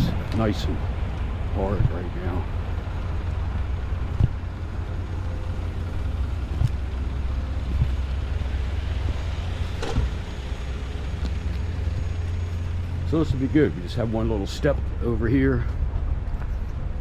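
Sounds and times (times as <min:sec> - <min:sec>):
construction machine engine running: 0:00.0 - 0:17.0
sharp knocks: 0:04.1 - 0:04.4.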